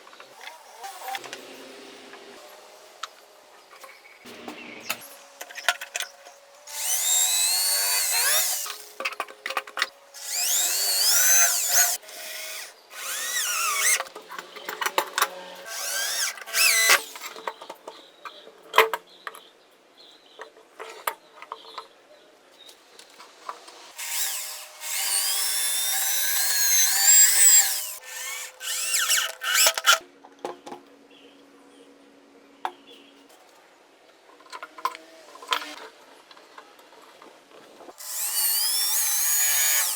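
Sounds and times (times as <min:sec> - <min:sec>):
power drill motor whine: 0:06.7 - 0:08.9, 0:10.2 - 0:14.0, 0:15.6 - 0:17.2, 0:24.0 - 0:29.9, 0:38.0 - 0:39.9.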